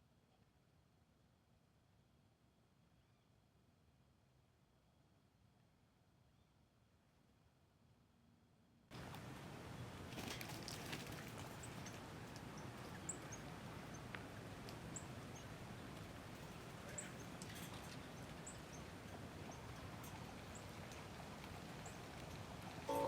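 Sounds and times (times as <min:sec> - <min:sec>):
steady outdoor hiss: 0:00.8 - 0:23.0.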